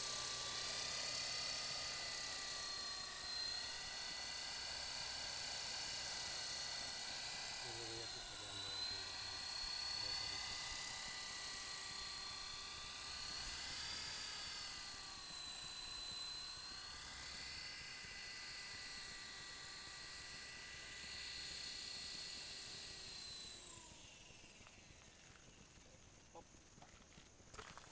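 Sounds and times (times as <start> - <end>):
toy helicopter high whine: 0.0 - 27.9.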